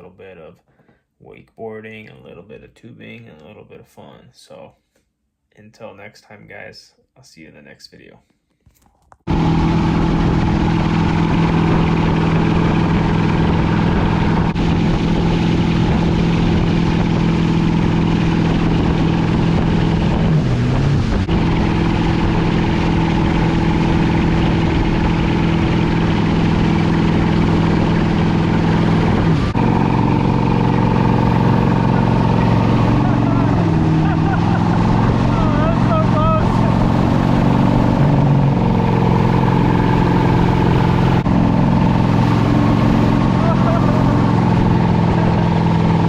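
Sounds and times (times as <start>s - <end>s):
motorboat engine running: 9.3s - 46.0s
water and wind rush: 9.3s - 46.0s.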